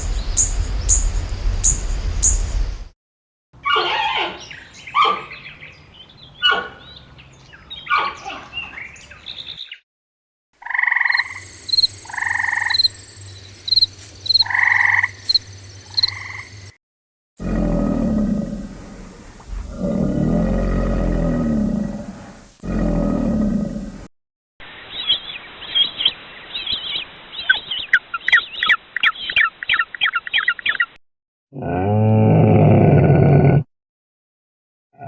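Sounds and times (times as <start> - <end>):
animal croaking calls: 3.6 - 5.4, 10.6 - 13.0, 13.7 - 16.6
animal chirping calls: 3.6 - 5.5, 7.8 - 8.8, 10.6 - 16.7
low animal roar: 17.4 - 24.1, 31.5 - 33.7.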